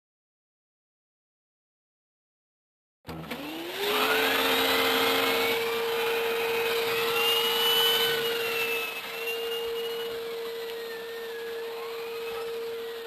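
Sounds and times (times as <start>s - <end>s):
vacuum cleaner running: 3.1s - 13.0s.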